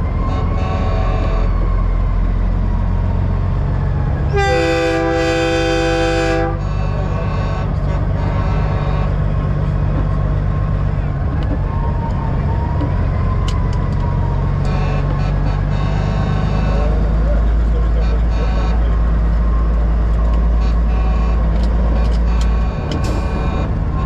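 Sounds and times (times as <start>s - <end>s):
truck air horn blasting: 0.0s - 1.9s, 4.2s - 10.5s, 14.5s - 24.0s
diesel truck engine droning: 0.0s - 24.0s
faint horns: 4.2s - 10.2s, 14.6s - 24.0s.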